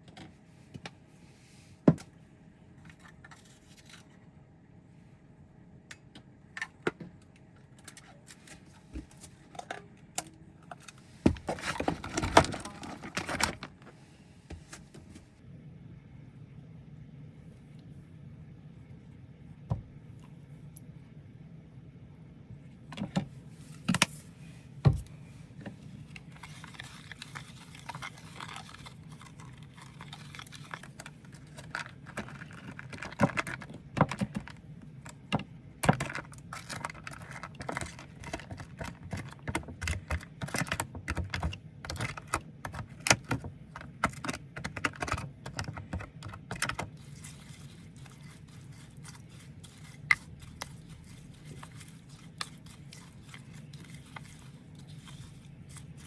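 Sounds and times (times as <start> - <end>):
faint low hum: 0.0 - 56.0.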